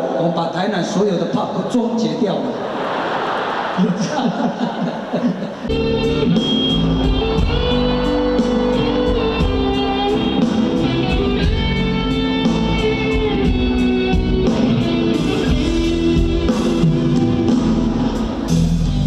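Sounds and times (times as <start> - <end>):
electric guitar: 5.7 - 19.0
live rock band playing: 5.7 - 19.0
steady drum beat: 5.7 - 19.0.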